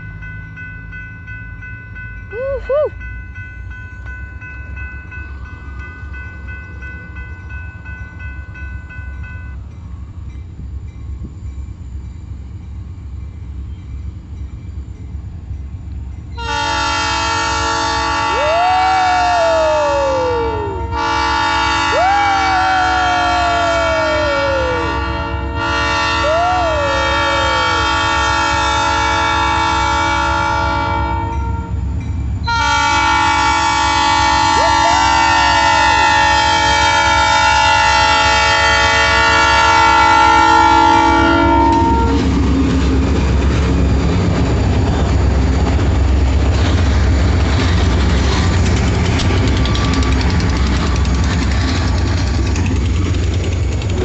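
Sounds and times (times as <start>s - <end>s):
train rumble and rail clatter: 0.0s - 54.0s
locomotive air horn: 16.4s - 31.8s, 32.5s - 42.3s.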